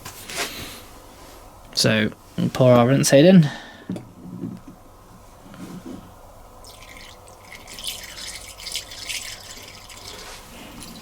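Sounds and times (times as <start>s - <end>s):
liquid trickling from a bottle: 6.6s - 11.0s.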